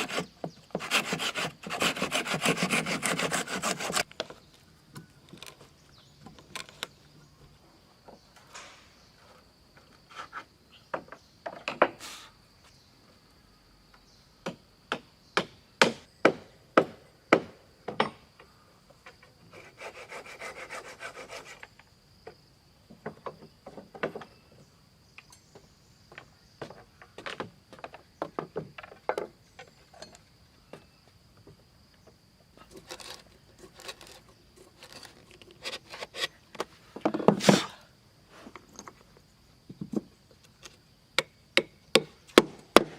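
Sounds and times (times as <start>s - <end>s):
sawing-like rubbing: 0.0s - 4.1s, 19.5s - 21.7s.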